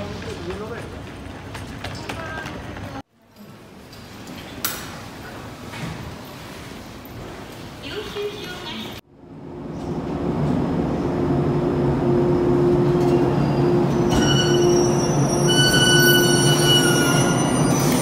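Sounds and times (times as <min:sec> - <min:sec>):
wheel and brake squeal: 0:13.4 - 0:18.0.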